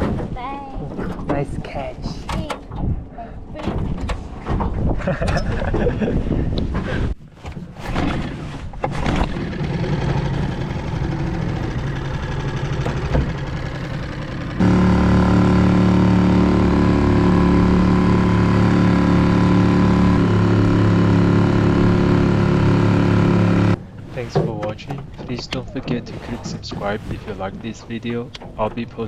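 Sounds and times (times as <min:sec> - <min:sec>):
outboard motor drone: 0:09.0 - 0:24.2
water noise: 0:09.2 - 0:24.3.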